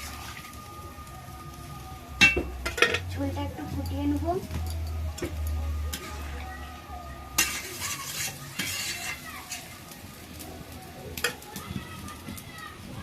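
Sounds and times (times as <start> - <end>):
spatula scraping a pot: 7.4 - 9.8.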